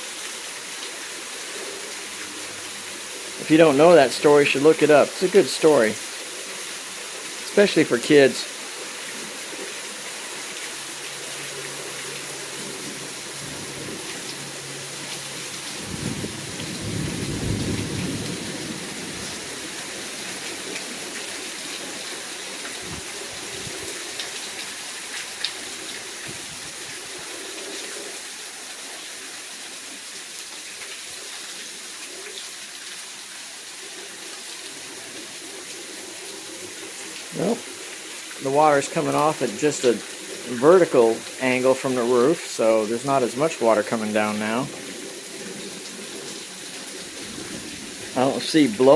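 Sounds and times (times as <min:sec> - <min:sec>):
heavy rain falling: 0:00.0 - 0:48.9
thunder rumbling: 0:12.7 - 0:14.8, 0:15.7 - 0:20.5, 0:47.0 - 0:48.9.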